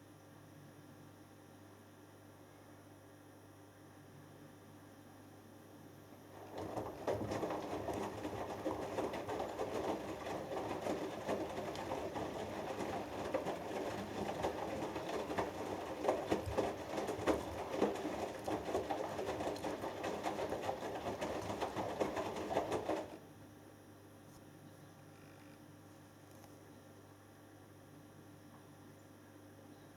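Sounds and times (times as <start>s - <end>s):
washing machine drum churning: 6.2s - 23.2s.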